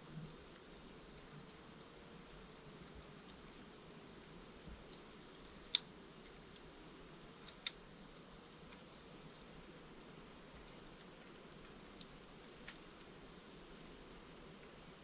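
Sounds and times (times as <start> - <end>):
wood fire crackling: 0.1 - 15.0
burning logs popping: 4.6 - 12.9.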